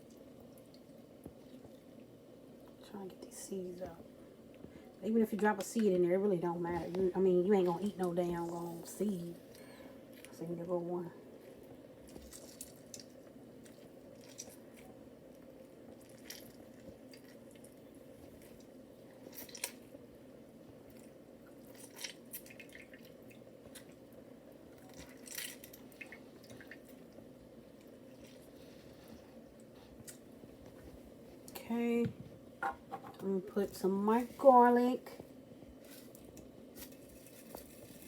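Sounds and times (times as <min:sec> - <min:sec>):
juice dripping into bowl: 0:00.0 - 0:02.8, 0:11.3 - 0:30.8
steady low hum: 0:00.0 - 0:38.0.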